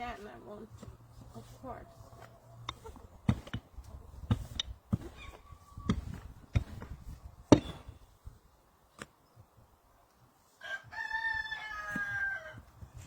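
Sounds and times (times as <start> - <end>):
sharp knocks: 7.5 - 7.9
rooster crowing: 10.6 - 12.7.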